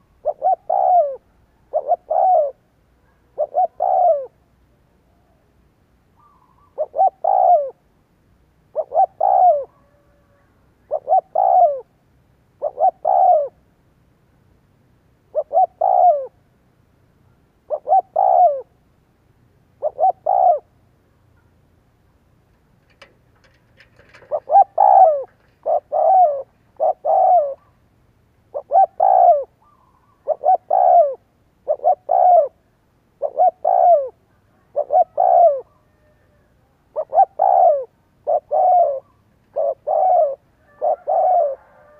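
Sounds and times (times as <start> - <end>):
dove cooing: 0.0 - 4.5, 6.2 - 7.8, 8.7 - 11.9, 12.6 - 13.6, 15.3 - 16.4, 17.7 - 18.8, 19.8 - 20.8, 22.8 - 27.8, 28.5 - 41.9.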